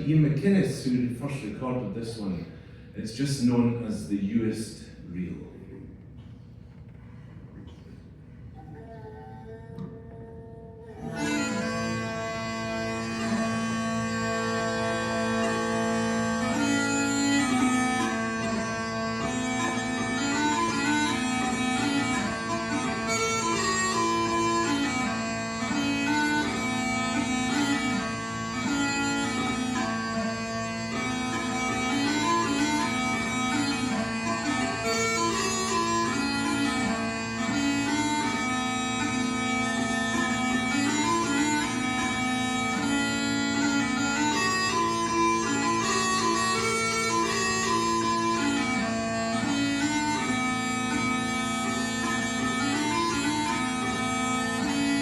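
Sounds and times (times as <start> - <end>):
smallpipes playing lively tune: 11.0 - 55.0.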